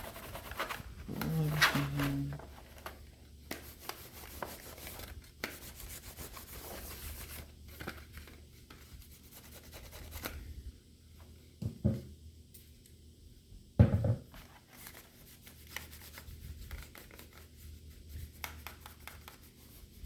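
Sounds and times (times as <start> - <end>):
rubbing strokes on laptop casing: 3.5 - 7.5, 14.8 - 20.0.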